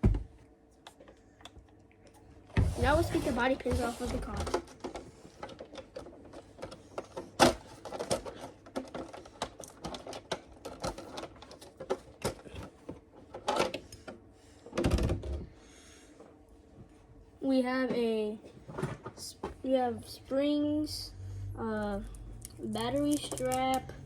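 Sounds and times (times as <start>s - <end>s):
clicking and rattling of plastic: 3.7s - 15.4s, 22.4s - 24.0s.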